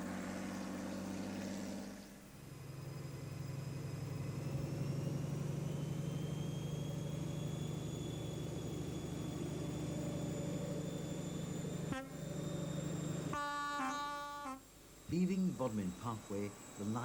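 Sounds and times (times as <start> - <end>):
diesel train engine droning: 0.0 - 17.0
high whine rising in pitch: 0.0 - 17.0
train horn blast: 11.9 - 12.3, 13.3 - 14.7.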